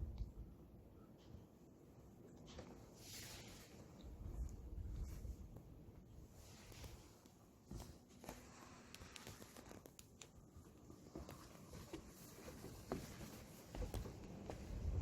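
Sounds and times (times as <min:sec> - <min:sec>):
wind rumble on microphone: 0:00.0 - 0:00.6, 0:04.0 - 0:06.8, 0:13.8 - 0:15.0
faint clicks and rustling: 0:06.4 - 0:15.0.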